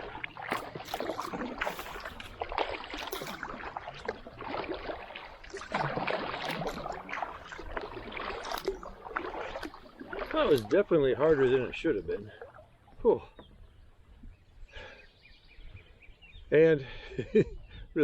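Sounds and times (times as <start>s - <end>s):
paddle strokes splashing water: 0.0s - 13.7s.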